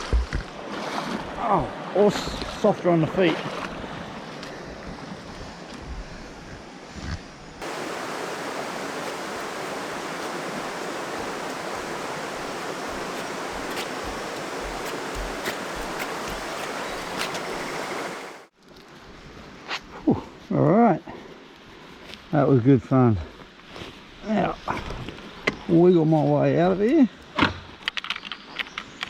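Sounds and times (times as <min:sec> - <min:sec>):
waterfall rushing: 0:07.6 - 0:18.5.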